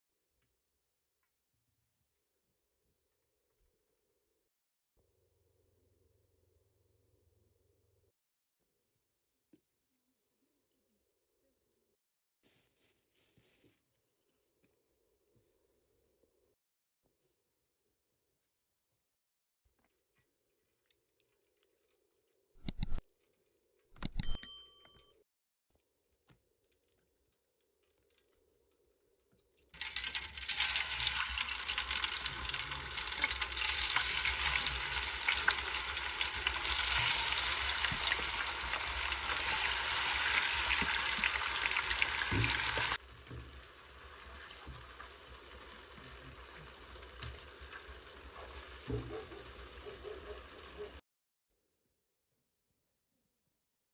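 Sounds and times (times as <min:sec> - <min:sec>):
metallic clink: 0:24.0 - 0:25.2
fish sizzling in a pan: 0:29.8 - 0:51.0.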